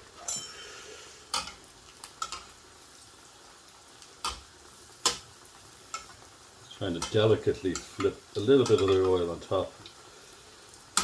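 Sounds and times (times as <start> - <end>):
chicken sizzling in oil: 0.0 - 11.0
utensil clicking against pan: 1.3 - 2.6, 4.2 - 5.3, 5.9 - 6.2, 6.9 - 9.2.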